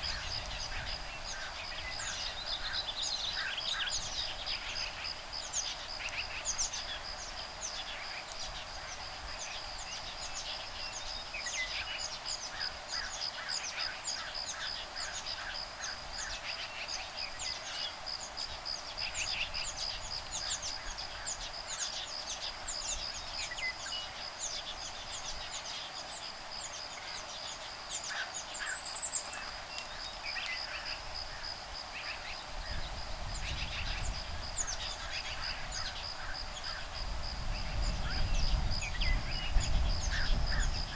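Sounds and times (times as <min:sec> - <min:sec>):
wind rumble on microphone: 0:00.0 - 0:12.0, 0:31.0 - 0:40.9.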